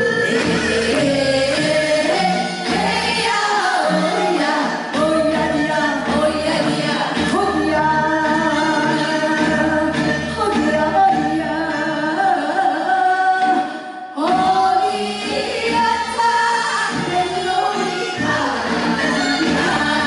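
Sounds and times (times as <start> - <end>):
women singing folk song: 0.0 - 20.0.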